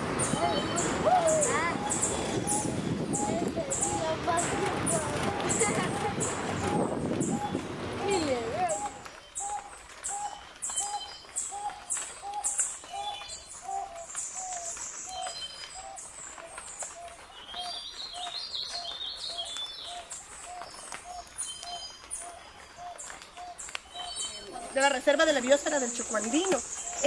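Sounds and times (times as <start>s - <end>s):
bird low hooting notes: 0.0s - 16.1s.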